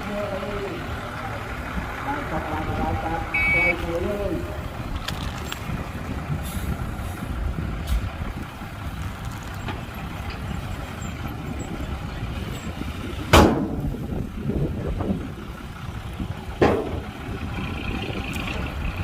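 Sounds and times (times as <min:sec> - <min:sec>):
heavy machinery diesel engines: 0:00.0 - 0:19.0
loud bang: 0:13.3 - 0:13.9.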